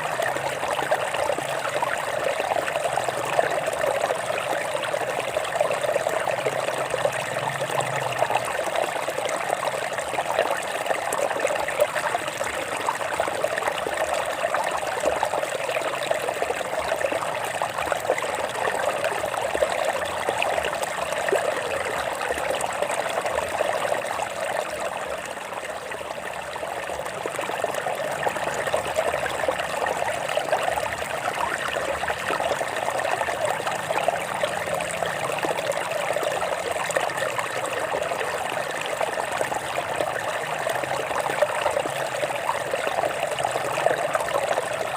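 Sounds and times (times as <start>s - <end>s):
stream water trickling over rocks: 0.0s - 44.9s.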